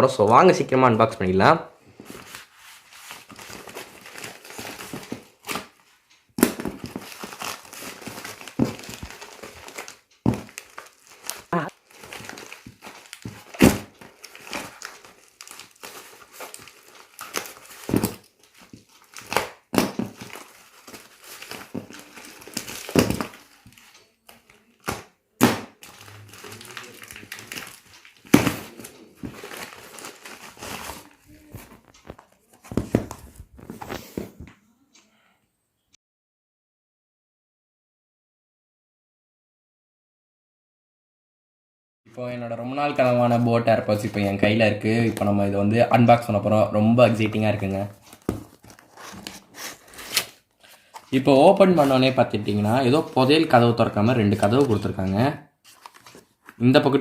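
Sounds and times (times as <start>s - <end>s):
packaging crumpled and torn: 6.8s - 25.0s, 25.7s - 32.6s, 47.9s - 53.5s, 55.7s - 56.6s.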